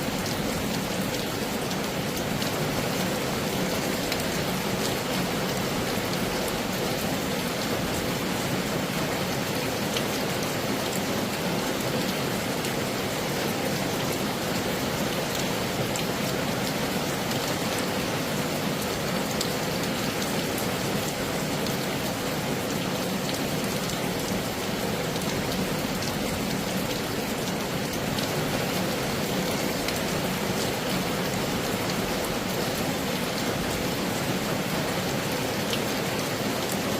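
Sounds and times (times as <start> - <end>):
heavy rain falling: 0.0 - 36.9.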